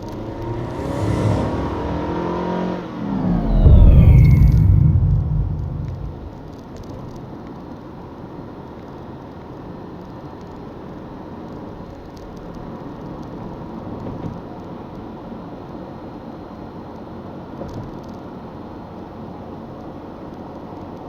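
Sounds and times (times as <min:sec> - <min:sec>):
car engine and road noise: 0:00.0 - 0:06.6.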